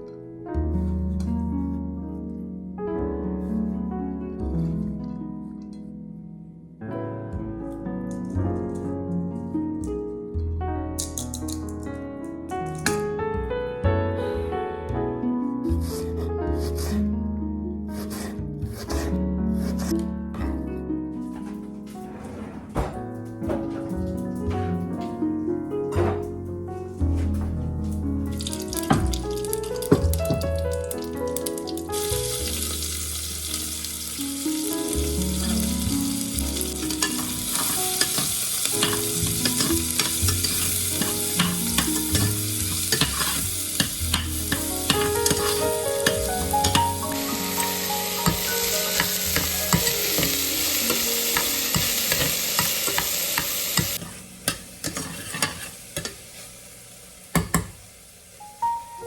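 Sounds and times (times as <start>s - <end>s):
soft background music: 0.0s - 55.7s, 58.3s - 59.0s
food sizzling in a hot pan: 28.4s - 59.0s.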